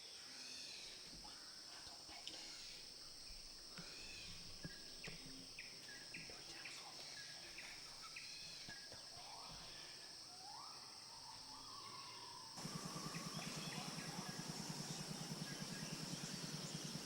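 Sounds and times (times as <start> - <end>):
high-pitched insect drone: 10.6 - 17.0
rising bird call: 11.4 - 17.0.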